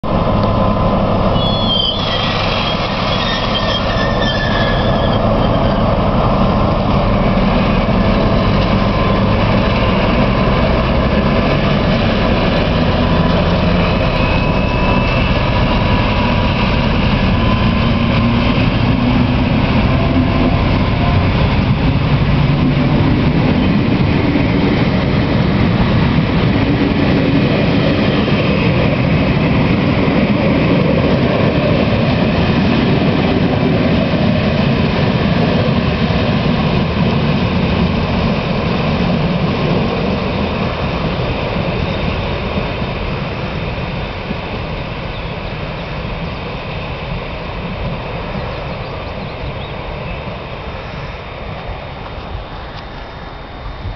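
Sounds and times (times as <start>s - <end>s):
diesel train engine running: 0.0s - 53.9s
high-pitched squeals: 1.3s - 6.1s, 13.6s - 18.1s.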